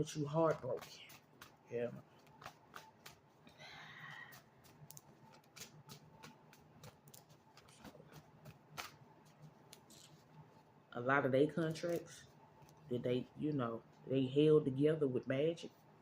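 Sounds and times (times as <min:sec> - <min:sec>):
soft rustle: 0:00.5 - 0:10.8.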